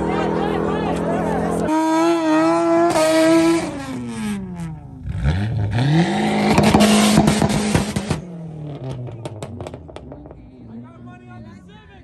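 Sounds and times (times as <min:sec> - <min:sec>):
car engine revving with pops: 0:01.9 - 0:10.7.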